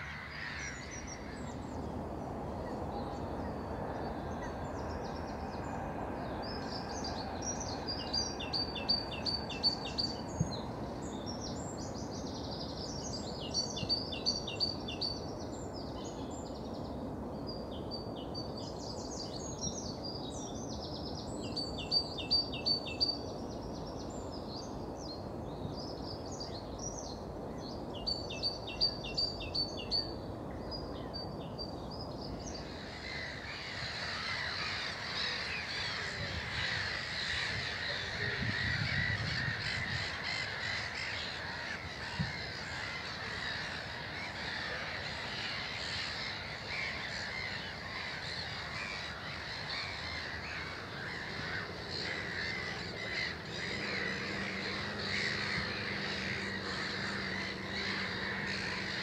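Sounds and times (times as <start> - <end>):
many birds calling: 0.0 - 1.9, 32.0 - 59.0
songbird trilling: 32.3 - 59.0.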